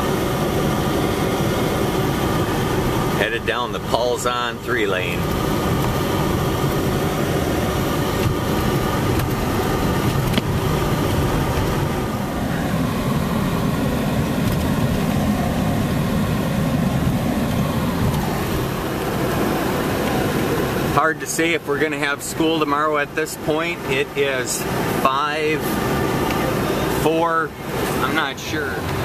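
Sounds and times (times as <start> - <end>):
car engine: 0.0 - 29.0
road noise: 0.0 - 29.0.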